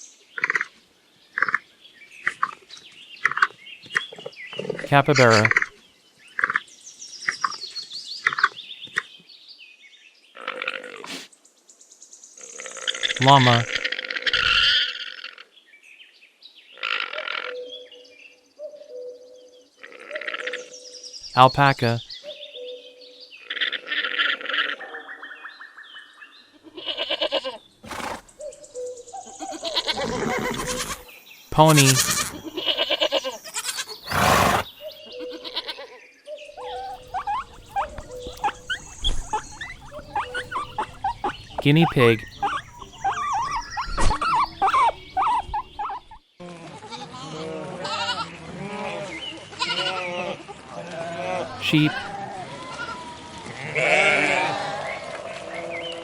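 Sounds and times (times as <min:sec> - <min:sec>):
pony whinnying: 0:27.0 - 0:28.3, 0:29.5 - 0:31.0, 0:31.8 - 0:34.8, 0:36.6 - 0:46.1
pony snorting: 0:27.8 - 0:28.3, 0:29.8 - 0:31.0, 0:34.0 - 0:34.8, 0:36.7 - 0:46.1
llama harsh breathy bursts: 0:34.1 - 0:34.7
llama soft humming: 0:36.6 - 0:46.1.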